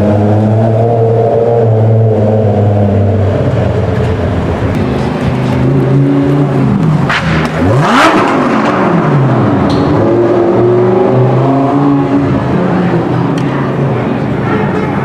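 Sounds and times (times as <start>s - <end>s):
car engines running: 0.0s - 15.0s
car engine revving hard: 5.3s - 13.3s.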